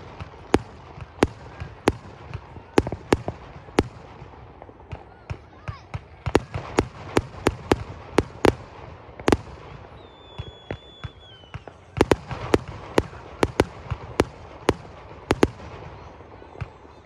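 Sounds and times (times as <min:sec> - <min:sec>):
fireworks bangs: 0:00.0 - 0:17.0
thin high whistle: 0:10.0 - 0:11.7.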